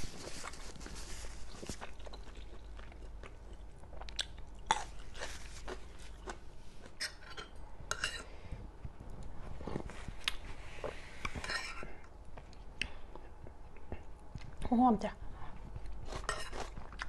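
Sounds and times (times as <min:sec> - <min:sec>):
chewing and crunching: 0:00.1 - 0:08.1, 0:15.4 - 0:17.0.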